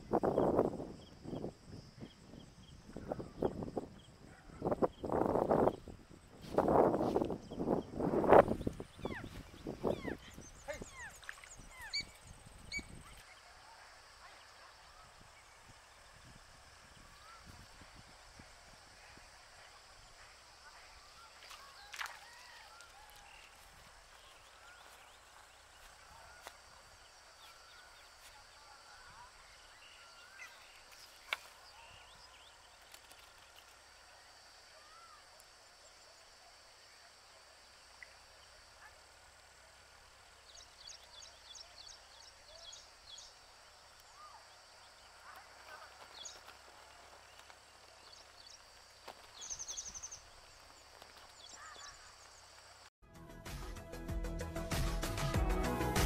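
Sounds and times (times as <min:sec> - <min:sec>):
faint bird chirps: 0:07.4 - 0:17.6, 0:20.1 - 0:36.3, 0:40.2 - 0:52.8.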